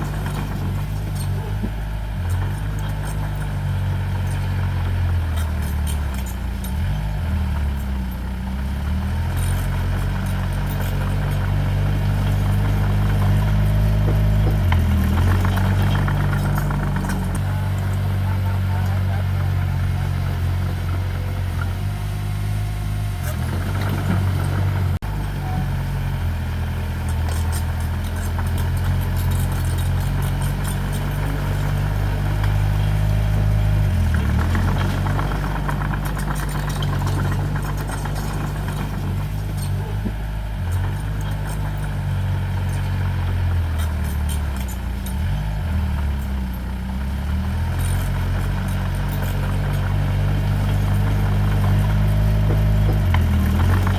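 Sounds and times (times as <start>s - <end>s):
diesel engine of earthmoving machine: 0.0s - 53.9s
light rattling: 26.6s - 53.9s.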